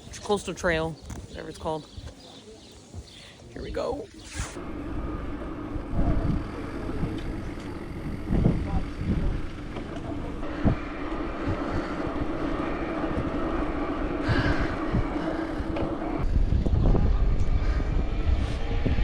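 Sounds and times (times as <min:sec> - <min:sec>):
wind rumbling on microphone: 0:02.9 - 0:19.0
steady hum: 0:03.6 - 0:19.0.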